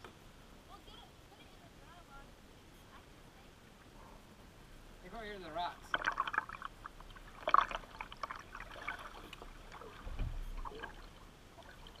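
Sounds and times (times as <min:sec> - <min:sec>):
paddle splashing in water: 0:05.8 - 0:12.0
paddle knocking against boat: 0:09.8 - 0:10.8
dull low bump: 0:09.9 - 0:10.8.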